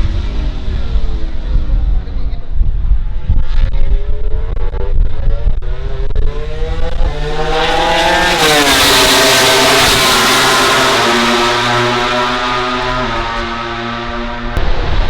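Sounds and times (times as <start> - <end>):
racing motorcycle passing by: 3.0 - 14.6.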